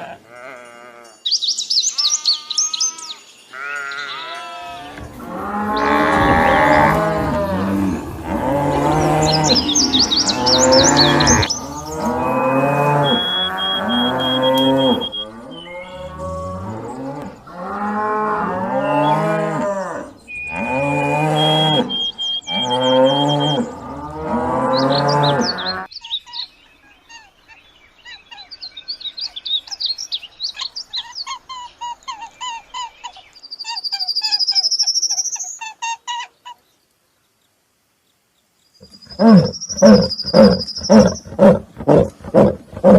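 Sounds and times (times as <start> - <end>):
cows mooing: 3.6 - 25.9, 39.1 - 42.9.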